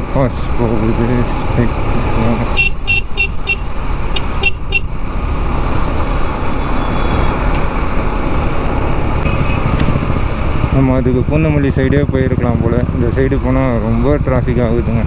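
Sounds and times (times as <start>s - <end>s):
motorcycle engine and wind rumble: 0.0s - 15.0s
vehicle horn toots: 2.4s - 5.0s, 9.2s - 9.8s.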